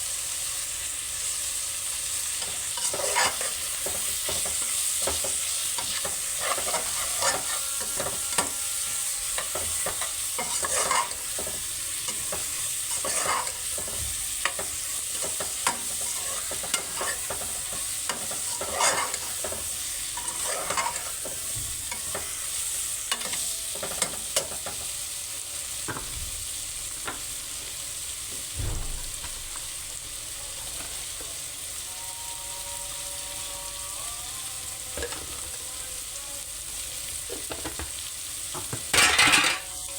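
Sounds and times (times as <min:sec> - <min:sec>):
gourd sizzling in hot oil: 0:00.0 - 0:39.9
spoon scraping pan: 0:02.1 - 0:24.9, 0:34.8 - 0:35.8, 0:37.1 - 0:39.9.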